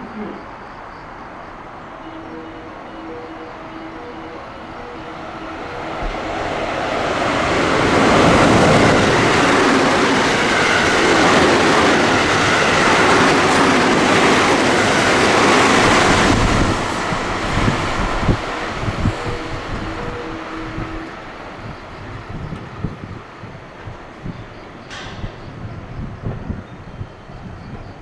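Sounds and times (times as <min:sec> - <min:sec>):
electric train passing at speed: 0:00.0 - 0:28.0
faint two-note tone: 0:02.0 - 0:06.2.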